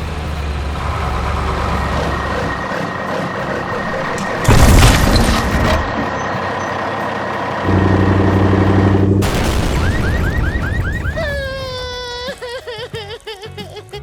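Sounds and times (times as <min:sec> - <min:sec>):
truck engine noise: 0:00.0 - 0:12.2
low steady drone: 0:05.6 - 0:11.3.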